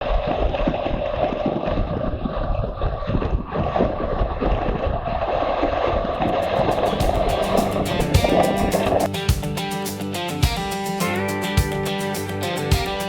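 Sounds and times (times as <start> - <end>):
wind rushing over microphone: 0.0 - 9.1.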